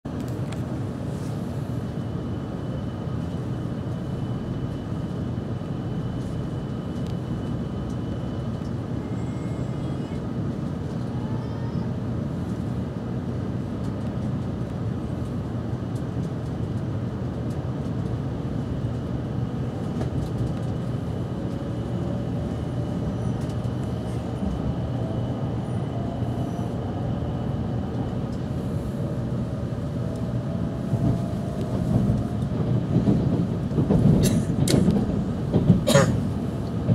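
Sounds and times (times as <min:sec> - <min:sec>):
low train running rumble: 0:00.1 - 0:36.9
rising electric motor whine: 0:21.6 - 0:32.8.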